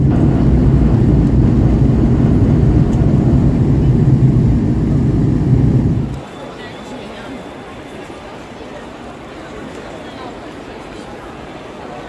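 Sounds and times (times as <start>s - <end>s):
train rumbling: 0.0s - 6.2s.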